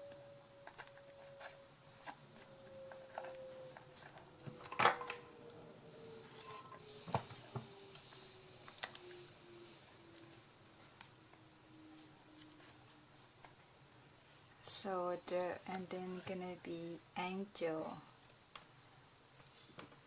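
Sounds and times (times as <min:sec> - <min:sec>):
faint tone sinking in pitch: 0:02.2 - 0:10.5.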